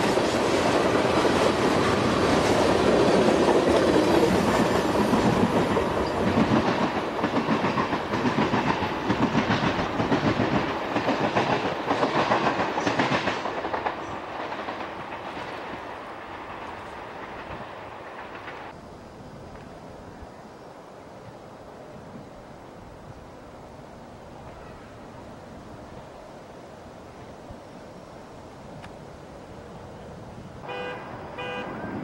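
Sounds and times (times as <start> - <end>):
train wheels clicking over rail joints: 0.0 - 18.8.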